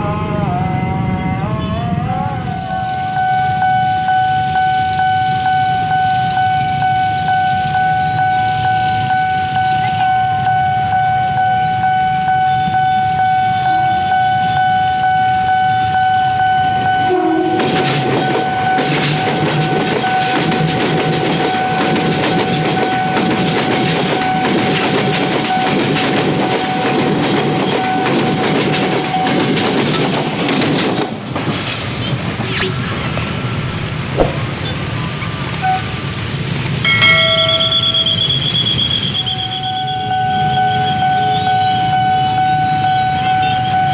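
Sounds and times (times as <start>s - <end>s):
train horn: 2.4s - 20.5s, 39.5s - 43.9s
level crossing alarm tone: 16.4s - 18.9s, 36.6s - 39.4s
train wheels clattering on rails: 17.5s - 32.4s, 36.6s - 39.2s.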